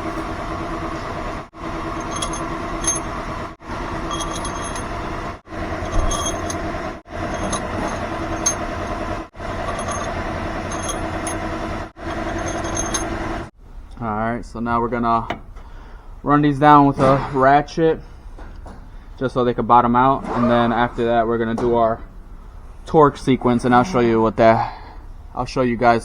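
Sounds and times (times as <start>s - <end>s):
steady background hum: 0.0s - 26.0s
metallic clinks of bolts: 1.9s - 3.2s, 4.0s - 5.0s, 5.8s - 9.0s, 9.6s - 11.5s, 12.1s - 13.2s.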